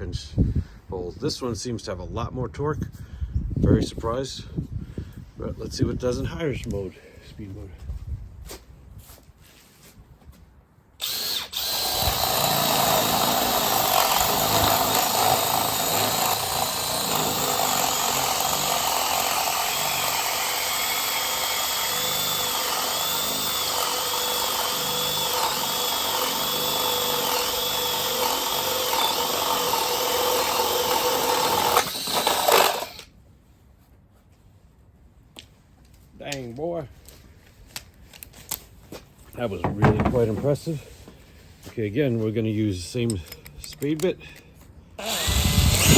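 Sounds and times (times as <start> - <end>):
drill boring through wood: 11.0 - 33.1, 45.0 - 45.9.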